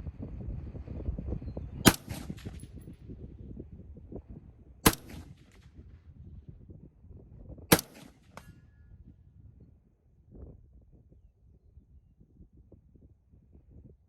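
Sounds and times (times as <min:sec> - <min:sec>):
wind rumble on microphone: 0:00.0 - 0:14.0
rifle shots echoing: 0:01.8 - 0:02.8, 0:04.8 - 0:05.8, 0:07.7 - 0:08.6.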